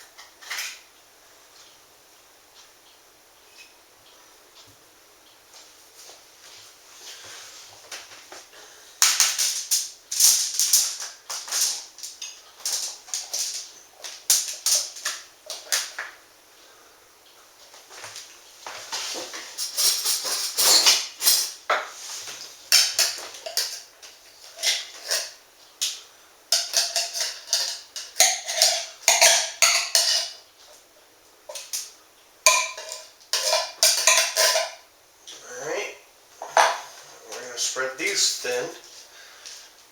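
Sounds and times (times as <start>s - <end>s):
beans rattling in a strainer: 9.0s - 16.0s, 19.0s - 21.6s, 26.5s - 30.4s, 32.5s - 34.8s
metal utensil scraping metal pan: 19.6s - 21.5s, 22.7s - 25.4s, 26.5s - 30.4s, 32.5s - 34.8s.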